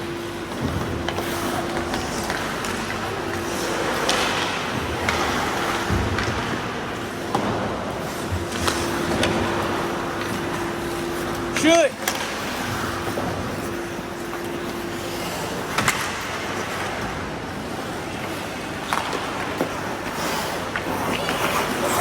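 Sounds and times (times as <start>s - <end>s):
skates scraping on ice: 0.4s - 16.9s, 17.5s - 22.0s
hockey sticks and puck clicking: 1.0s - 6.5s, 15.7s - 16.6s, 18.8s - 22.0s.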